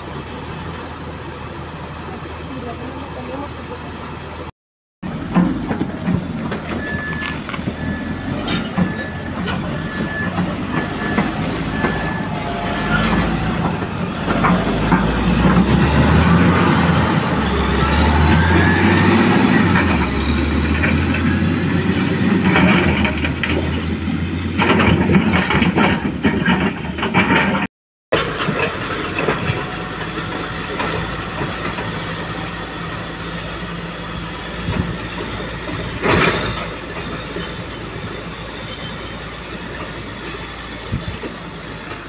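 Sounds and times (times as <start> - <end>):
diesel engine running under load: 0.0 - 42.0
reversing alarm beeping: 6.7 - 13.2
metal and concrete clanking: 24.5 - 32.2.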